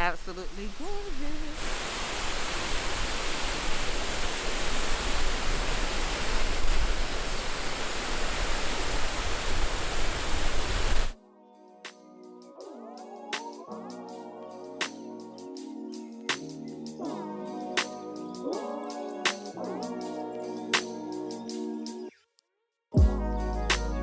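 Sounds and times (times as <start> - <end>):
waterfall roaring: 0.0 - 11.2
quiet music: 11.2 - 22.1, 23.0 - 24.0.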